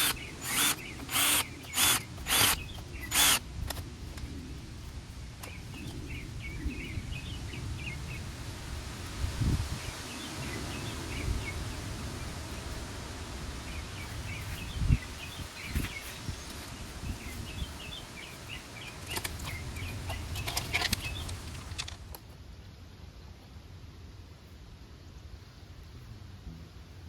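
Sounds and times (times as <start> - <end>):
small birds chirping: 0.0 - 3.4, 4.3 - 8.4, 13.5 - 21.7
wind rumble on microphone: 2.4 - 22.1
sharp clicks and rustling: 18.8 - 22.3.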